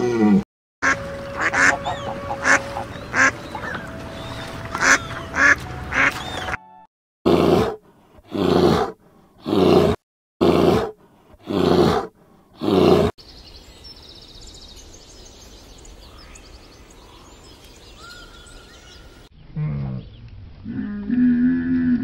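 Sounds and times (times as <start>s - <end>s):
bear growling: 7.3s - 13.2s.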